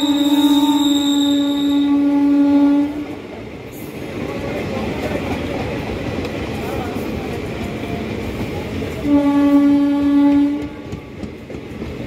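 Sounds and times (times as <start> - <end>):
train horn: 0.0 - 3.2, 9.0 - 10.9
train coaches rumbling past: 0.0 - 12.0.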